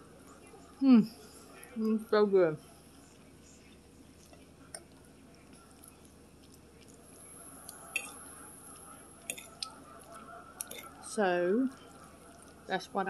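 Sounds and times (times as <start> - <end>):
wet chewing with mouth clicks: 2.9 - 13.0.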